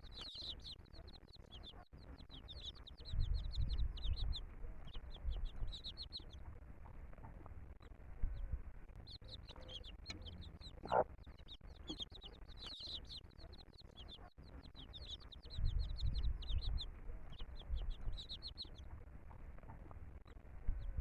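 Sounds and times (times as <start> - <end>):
baby chicks peeping: 0.0 - 21.0
hen clucking: 9.2 - 14.2.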